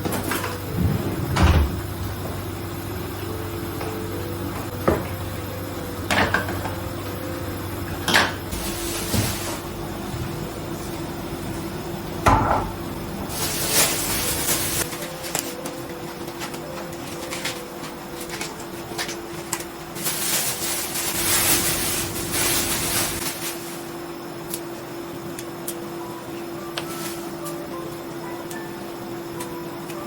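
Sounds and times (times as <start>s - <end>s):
steady low hum: 0.0s - 30.0s
dishes and utensils clattering: 6.1s - 6.8s.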